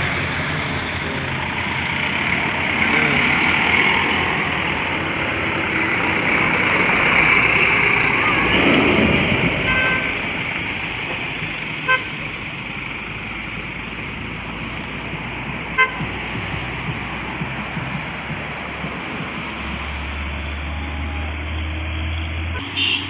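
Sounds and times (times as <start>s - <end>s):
road traffic: 0.0s - 23.0s
vehicle horn toots: 9.6s - 10.2s, 11.8s - 12.2s, 15.8s - 16.2s, 22.5s - 23.0s.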